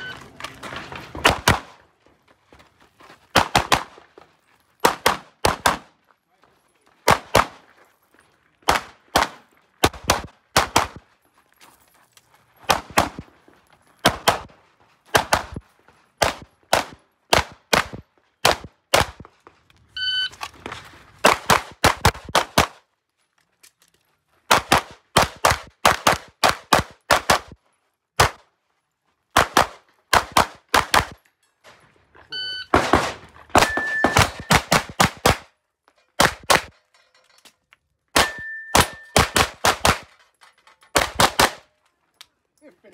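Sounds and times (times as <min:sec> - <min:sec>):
pistol shots: 0:03.3 - 0:04.0, 0:04.8 - 0:05.9, 0:07.0 - 0:07.6, 0:08.6 - 0:11.0, 0:12.7 - 0:13.3, 0:14.0 - 0:14.5, 0:16.2 - 0:19.3, 0:29.4 - 0:31.2, 0:32.7 - 0:35.5, 0:38.2 - 0:40.1, 0:41.0 - 0:41.7.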